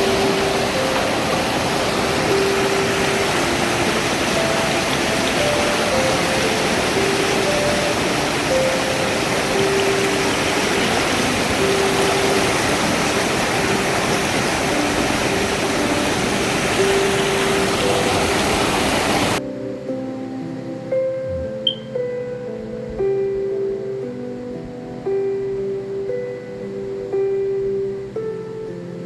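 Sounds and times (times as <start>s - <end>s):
waterfall roaring: 0.0s - 19.4s.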